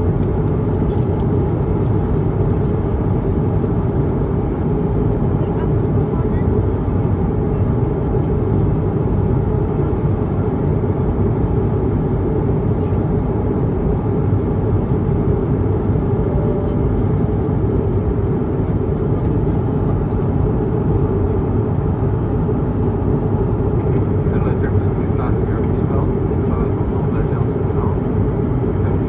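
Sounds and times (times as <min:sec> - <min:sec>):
airplane cabin engine rumble: 0:00.0 - 0:29.0.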